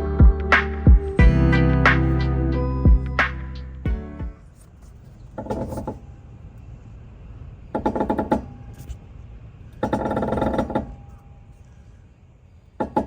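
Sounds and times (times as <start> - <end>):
steady low rumble: 0.0 - 4.6.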